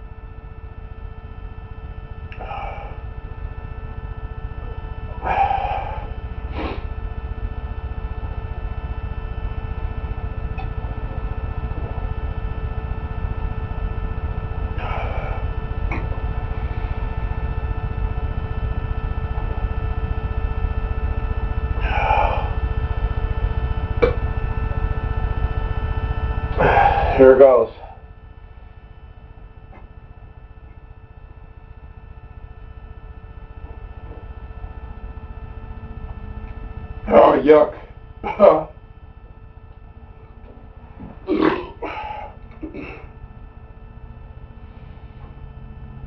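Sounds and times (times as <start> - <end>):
faint steady tones: 0.0 - 46.0
steady low hum: 0.0 - 46.0
person exhaling or sighing: 2.4 - 3.0, 5.2 - 6.9, 14.8 - 15.5, 21.8 - 22.6, 26.6 - 27.9, 41.3 - 43.0.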